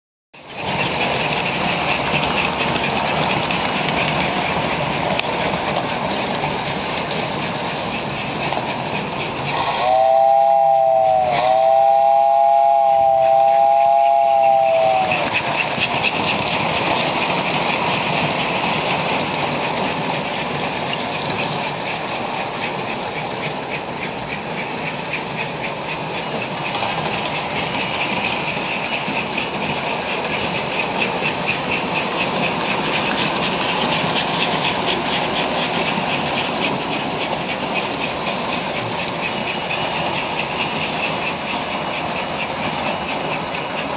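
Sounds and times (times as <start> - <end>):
rhythmic hissing chuff: 0.4 - 43.9
toy train whistle: 9.6 - 15.4.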